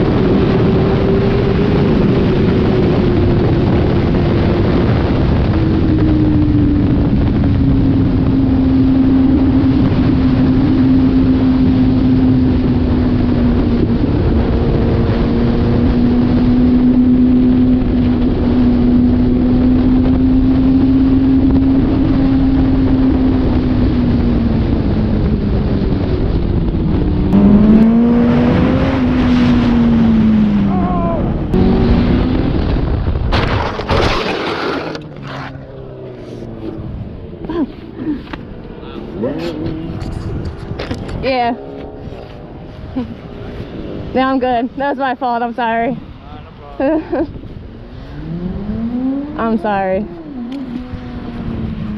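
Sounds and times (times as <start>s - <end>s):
wind noise: 0.0s - 51.9s
motorcycle engine high revs: 27.3s - 30.7s, 47.8s - 51.9s.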